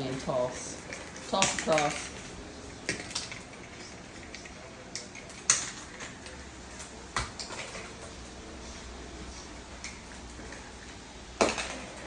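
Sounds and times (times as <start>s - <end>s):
hard clacks of toys knocked about: 11.4s - 12.0s.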